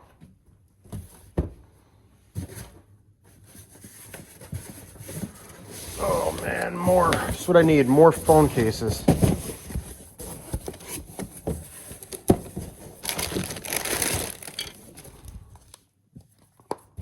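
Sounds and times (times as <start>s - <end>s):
packaging rustling and crinkling: 4.8s - 15.8s
boxes clicking and knocking: 6.3s - 14.9s.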